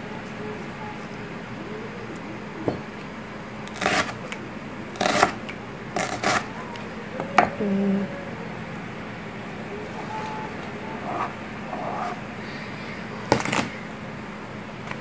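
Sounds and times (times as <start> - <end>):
knife cutting onion on board: 3.7 - 4.3, 5.0 - 5.4, 6.0 - 6.5.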